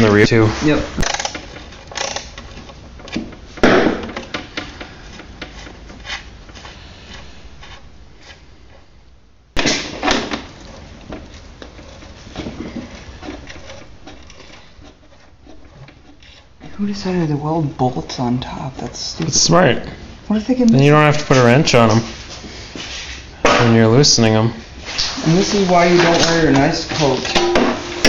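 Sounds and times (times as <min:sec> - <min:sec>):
sharp knocks: 0:03.1 - 0:05.6, 0:27.3 - 0:28.0.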